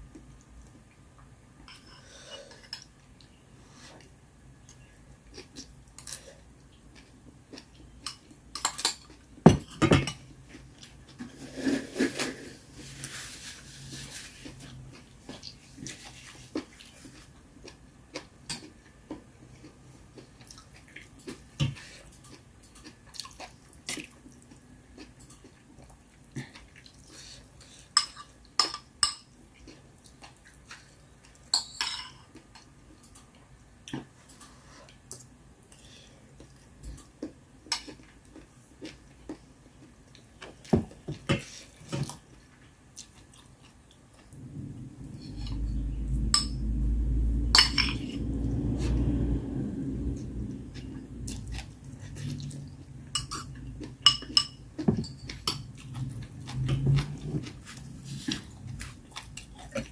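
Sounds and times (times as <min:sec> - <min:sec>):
chewing: 0:14.4 - 0:27.4, 0:41.4 - 0:45.8, 0:50.7 - 0:59.9.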